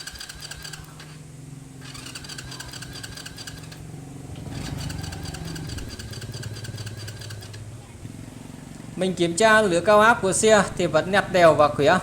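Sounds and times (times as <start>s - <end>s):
motorcycle engine cranking: 0.0s - 8.9s.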